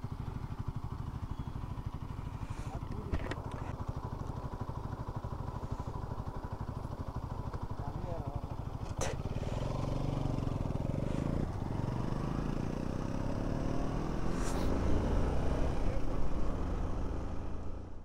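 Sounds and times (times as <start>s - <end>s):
motorcycle engines accelerating: 7.6s - 18.0s.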